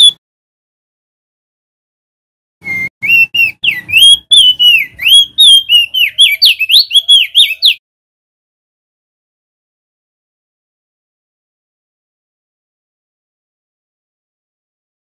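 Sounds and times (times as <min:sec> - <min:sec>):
bird singing whistled notes: 0:02.6 - 0:07.8.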